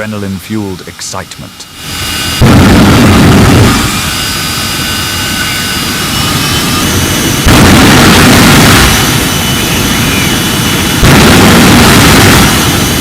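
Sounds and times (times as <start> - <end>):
jet engine roaring: 0.0 - 13.0.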